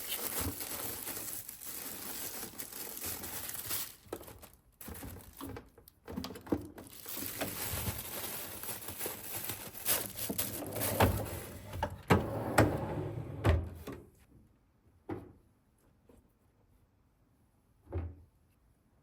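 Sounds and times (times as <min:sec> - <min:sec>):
plastic bags crinkling: 0:00.0 - 0:11.9.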